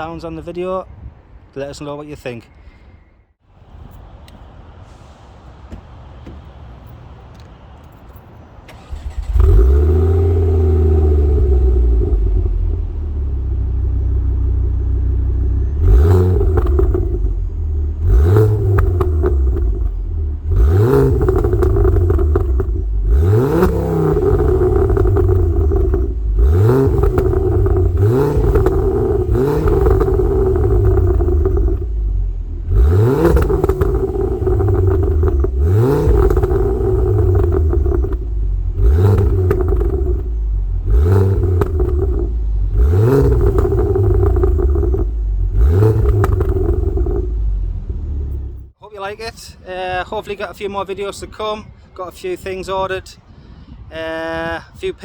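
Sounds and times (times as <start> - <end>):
car engine revving: 8.7 - 48.8.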